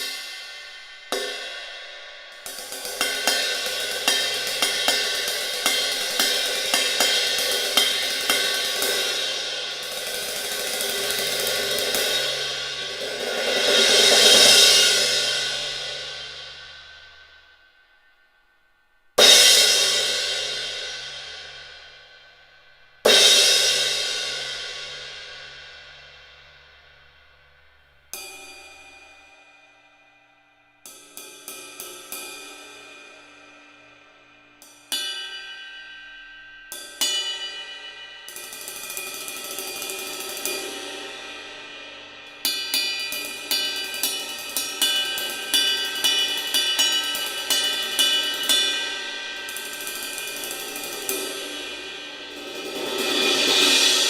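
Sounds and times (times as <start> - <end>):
cymbal crash: 0.0 - 17.6, 38.3 - 54.0
cymbal strikes: 0.0 - 18.3, 19.2 - 54.0.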